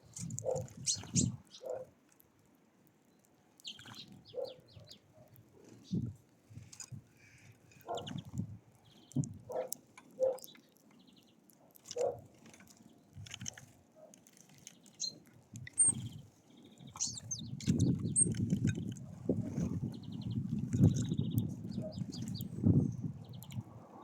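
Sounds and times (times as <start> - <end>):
birds chirping: 0.0 - 1.9, 3.1 - 6.1, 7.7 - 13.2, 14.6 - 23.7
rattling bird trills: 0.1 - 1.8, 16.9 - 19.0.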